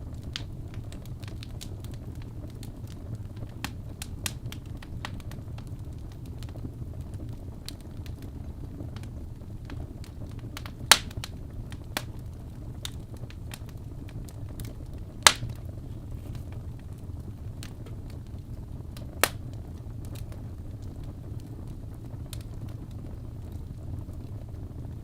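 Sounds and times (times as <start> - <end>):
faint fire crackles: 0.0 - 25.0
fire rumbling: 0.0 - 25.0
loud wood pops: 10.9 - 11.2, 15.2 - 15.6.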